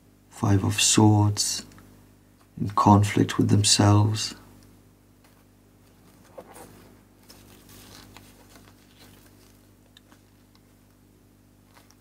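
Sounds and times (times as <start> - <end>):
cards being shuffled: 5.2 - 10.8.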